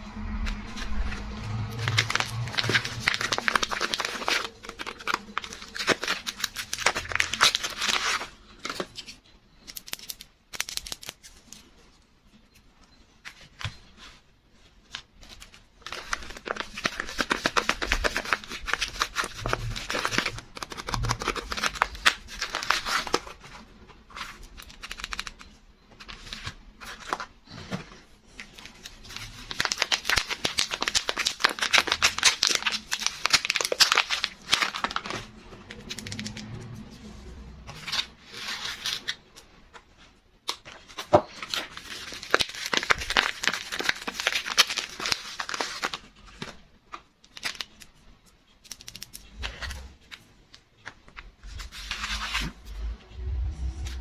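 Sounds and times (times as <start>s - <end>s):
wrapper crinkling and tearing: 0.9s - 11.4s, 15.2s - 23.6s, 28.4s - 36.7s, 40.4s - 48.0s.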